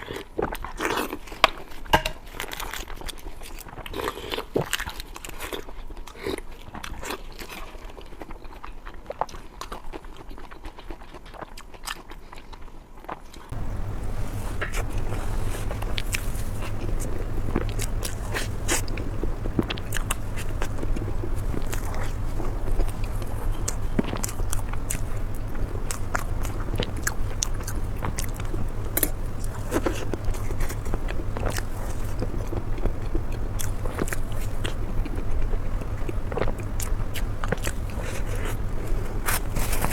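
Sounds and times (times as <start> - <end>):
person chewing food: 0.0 - 39.9
wet crackly mouth clicks: 13.4 - 39.9
steady low hum: 13.5 - 39.9.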